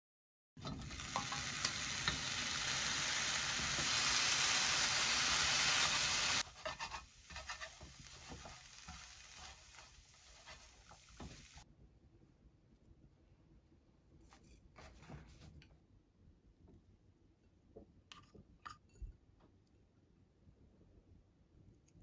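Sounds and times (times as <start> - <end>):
chopsticks scraping and tapping pan: 0.6 - 2.3, 6.4 - 11.6
food sizzling in a frying pan: 0.6 - 11.6.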